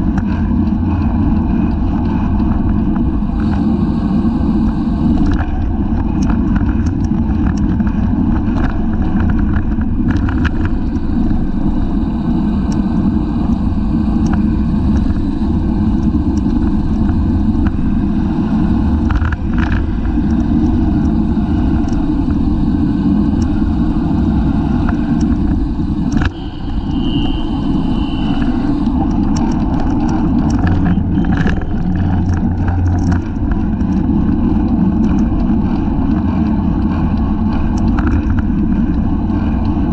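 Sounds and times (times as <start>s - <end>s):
bicycle clicks and rattles: 0.0s - 3.6s, 5.1s - 27.4s, 28.3s - 39.9s
wind buffeting microphone: 0.0s - 39.9s.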